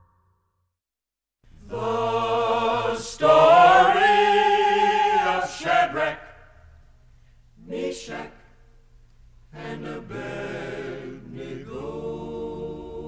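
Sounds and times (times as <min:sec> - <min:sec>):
voices singing held chords: 0:01.6 - 0:06.6, 0:07.6 - 0:08.7, 0:09.5 - 0:13.0.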